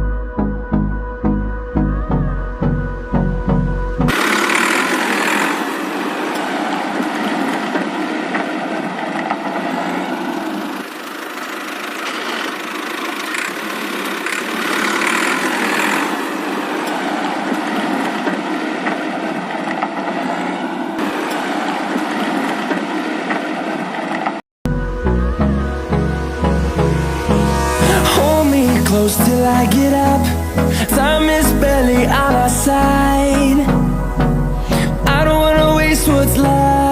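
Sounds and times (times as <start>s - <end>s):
small motor whirring: 4.1s - 24.3s.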